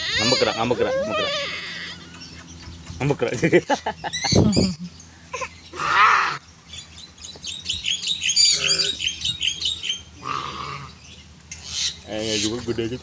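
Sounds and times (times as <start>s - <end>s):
caged birds chirping: 0.0s - 13.0s
harsh bird call: 4.2s - 6.5s, 7.8s - 11.0s.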